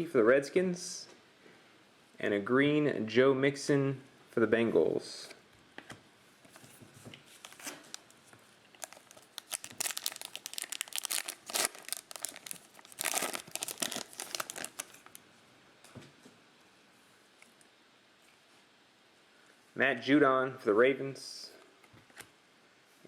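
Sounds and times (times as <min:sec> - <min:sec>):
plastic wrapper crinkling and tearing: 0:07.3 - 0:15.2.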